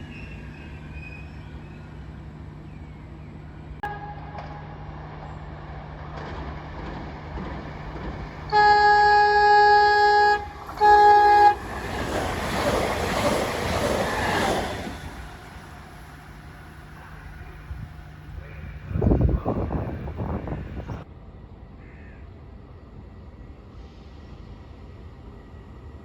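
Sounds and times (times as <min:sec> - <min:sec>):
train rushing past: 0:00.0 - 0:26.0
train horn blasts: 0:03.8 - 0:05.0, 0:08.5 - 0:12.2.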